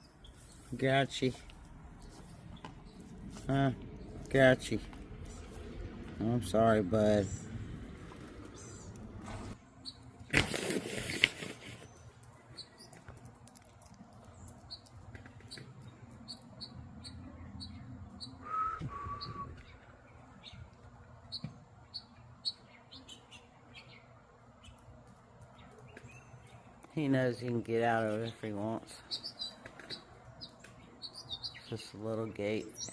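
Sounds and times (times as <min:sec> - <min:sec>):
small birds chirping: 0:00.0 - 0:32.9
whistled bird notes: 0:17.6 - 0:19.8.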